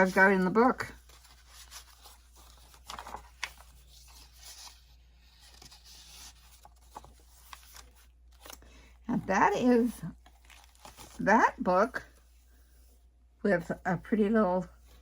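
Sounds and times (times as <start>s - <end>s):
paper pages rustling: 0.0s - 13.0s.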